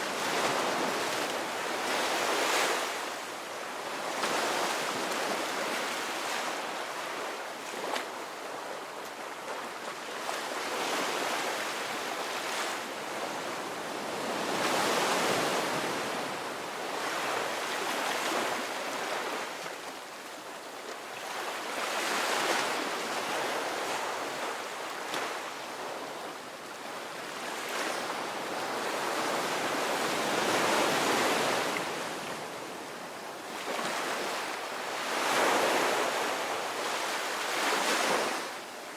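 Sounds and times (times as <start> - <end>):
ocean surf breaking on beach: 27.0 - 38.9.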